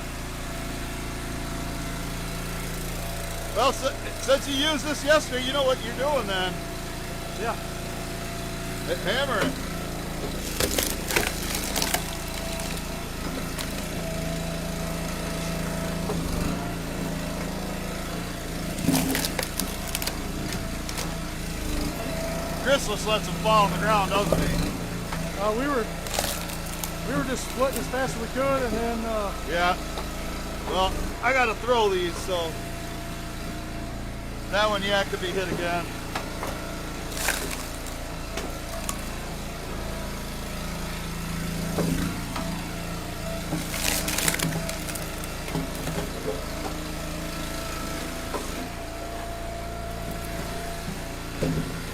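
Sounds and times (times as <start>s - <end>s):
small gas engine running: 0.0s - 51.9s
wood knocking and cracking: 10.3s - 14.0s, 18.7s - 21.2s, 26.0s - 27.9s, 43.5s - 46.8s.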